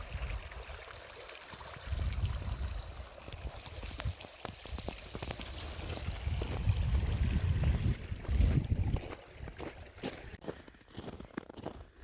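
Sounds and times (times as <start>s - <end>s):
wind buffeting microphone: 1.8s - 10.4s.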